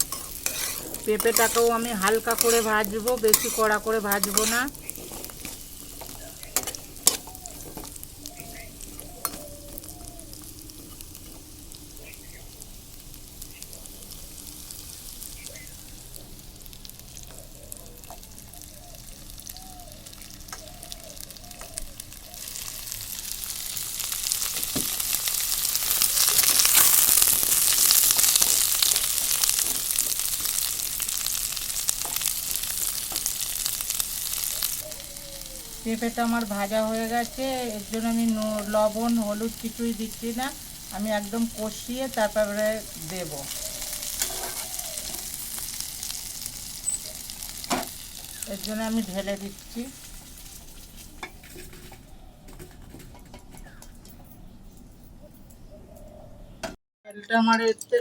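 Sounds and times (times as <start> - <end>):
stirring clicks: 0.0 - 11.3
food sizzling in oil: 0.0 - 52.0.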